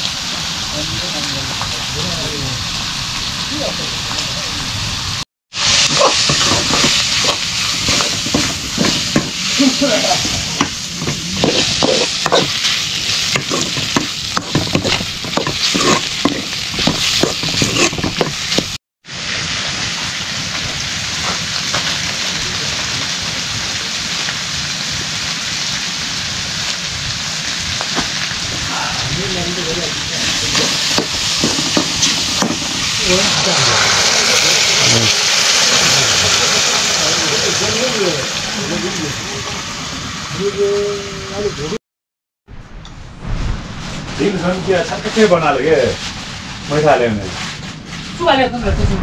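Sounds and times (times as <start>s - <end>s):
chicken sizzling in a pan: 0.0s - 41.7s
spoon scraping against pan: 10.6s - 12.7s, 13.3s - 18.7s.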